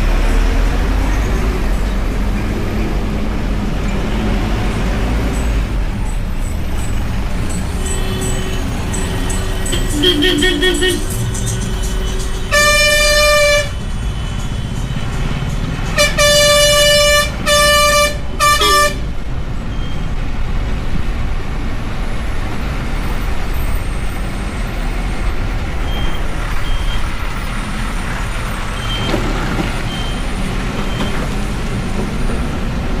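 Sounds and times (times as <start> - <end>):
heavy vehicle horn blasts: 7.8 - 13.8, 16.0 - 19.1.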